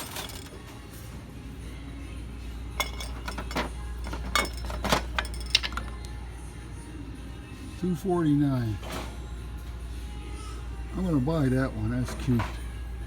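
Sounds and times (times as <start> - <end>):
knickknacks clinking: 0.0 - 0.7, 2.8 - 6.1.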